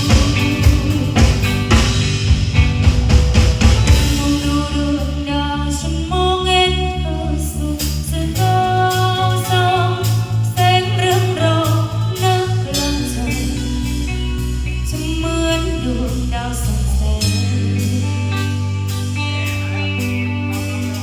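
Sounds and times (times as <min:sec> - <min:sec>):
live band playing chords: 0:00.0 - 0:06.6, 0:07.8 - 0:21.0
pulsing bass: 0:00.0 - 0:21.0.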